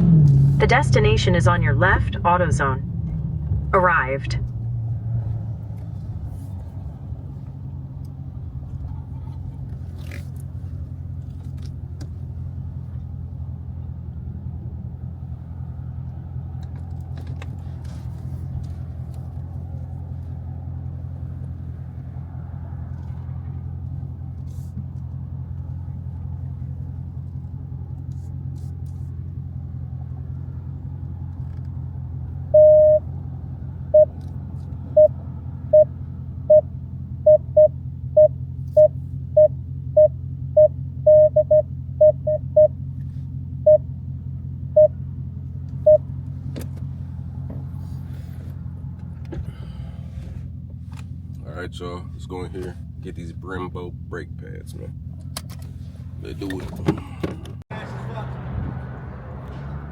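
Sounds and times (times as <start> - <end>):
car engine idling: 0.0 - 59.9
high electronic beeps: 32.6 - 33.0, 37.3 - 42.7.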